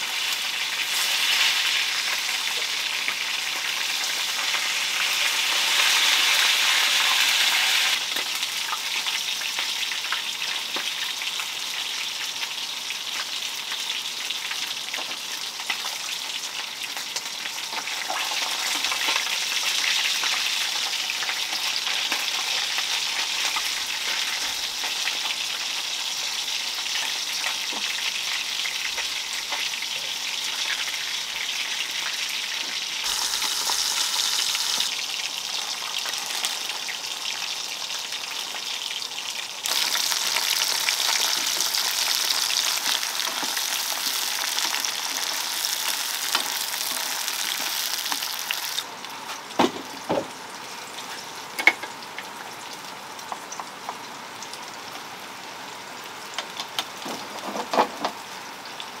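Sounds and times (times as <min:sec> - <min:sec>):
food sizzling in hot oil: 0:00.0 - 0:48.9.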